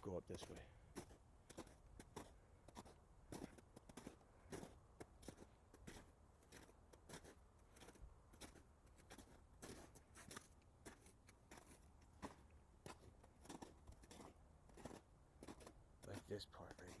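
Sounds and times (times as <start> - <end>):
footsteps crunching: 0.0 - 17.0.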